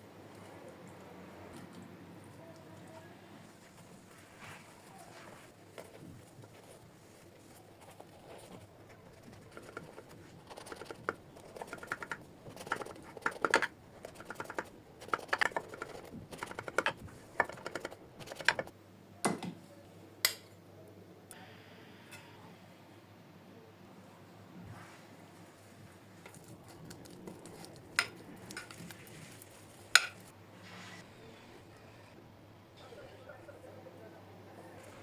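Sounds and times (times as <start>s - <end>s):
utensils tapping and clicking: 9.3s - 18.7s, 26.2s - 28.9s.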